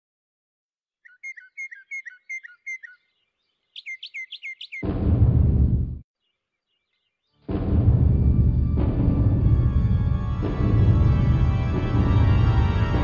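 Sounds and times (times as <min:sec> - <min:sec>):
bird chirping: 0:01.0 - 0:04.8, 0:06.2 - 0:07.4.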